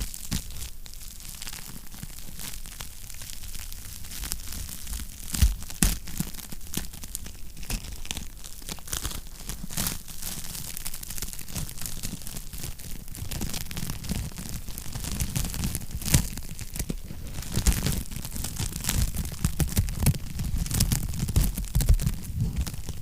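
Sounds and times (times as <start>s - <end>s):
wood fire crackling and popping: 0.0s - 23.0s.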